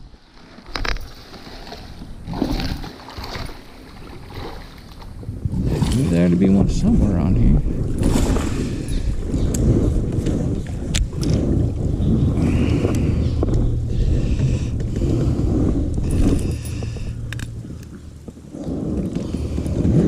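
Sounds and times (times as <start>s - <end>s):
low rumble: 3.6s - 20.0s
knocks and clicks on kayak: 9.3s - 19.9s.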